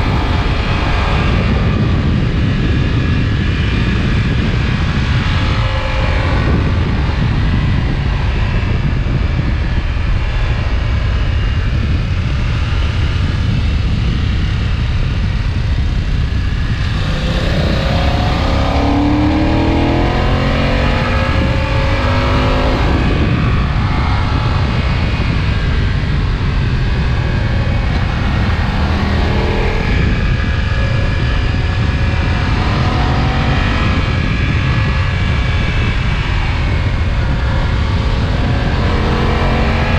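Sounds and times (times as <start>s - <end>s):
motorcycle engine and exhaust: 0.0s - 39.9s
wind rush on microphone: 0.0s - 39.9s.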